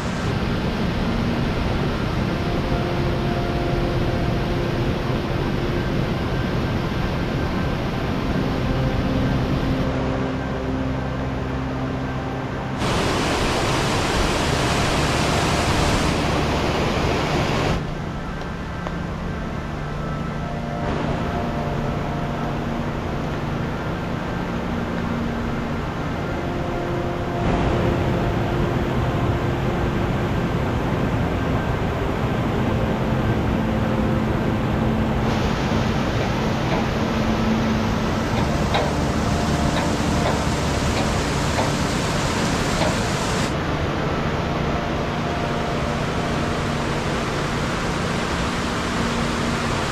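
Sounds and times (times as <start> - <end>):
low steady tones: 0.0 - 49.9
stream water rushing: 0.0 - 49.9.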